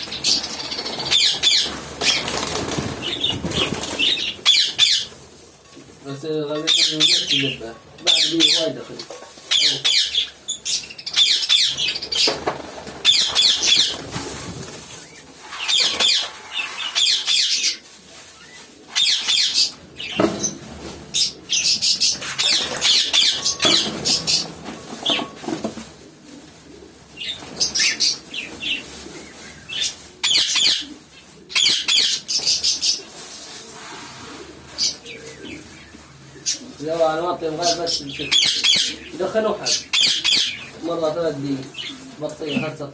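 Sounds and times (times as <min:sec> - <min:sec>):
birds flapping wings: 0:00.0 - 0:05.1, 0:11.8 - 0:16.4, 0:21.9 - 0:30.0
birds calling: 0:00.0 - 0:05.3, 0:06.0 - 0:14.2, 0:15.0 - 0:33.3, 0:34.2 - 0:42.9.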